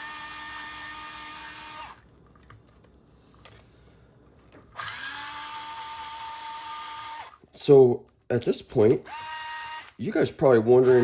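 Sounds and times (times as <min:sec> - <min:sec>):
power driver whining: 0:04.7 - 0:07.4, 0:08.8 - 0:10.0, 0:10.6 - 0:11.0.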